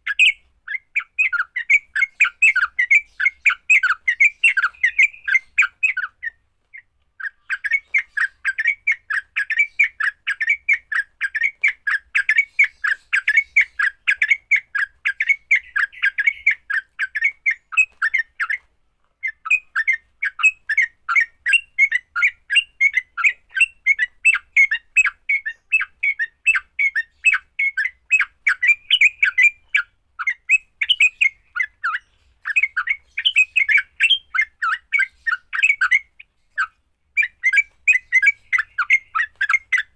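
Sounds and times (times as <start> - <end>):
bird chattering rapidly: 0.0 - 18.6, 19.2 - 39.9.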